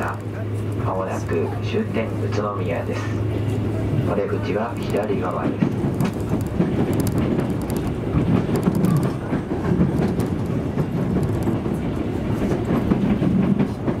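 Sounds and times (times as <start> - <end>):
wheels rumbling on rail: 0.0 - 14.0
wheels clicking over rail joints: 4.4 - 14.0.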